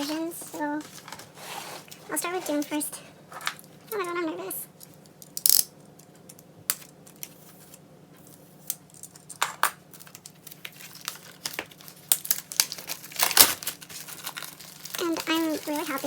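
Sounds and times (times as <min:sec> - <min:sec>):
plastic wrapping crinkling: 0:00.0 - 0:02.9, 0:09.9 - 0:16.0
package handling clicks: 0:10.0 - 0:15.4.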